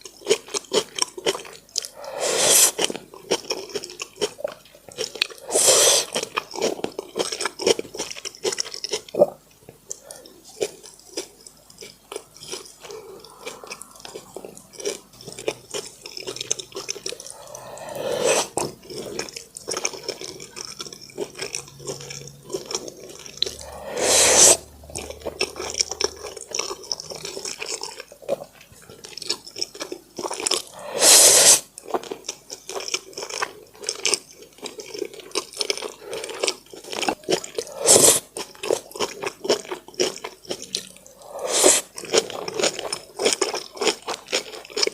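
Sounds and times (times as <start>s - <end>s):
wet chewing and lip-smacking: 0.0s - 2.0s, 2.7s - 23.9s, 24.6s - 30.8s, 31.6s - 44.9s
loud wet mouth noises: 1.8s - 3.0s, 5.0s - 6.4s, 11.7s - 27.8s, 30.2s - 31.8s, 35.9s - 38.8s, 40.1s - 43.4s.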